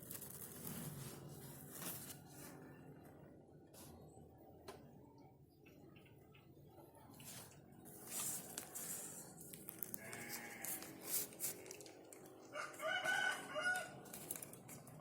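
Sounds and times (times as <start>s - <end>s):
rooster crowing: 12.5s - 14.0s.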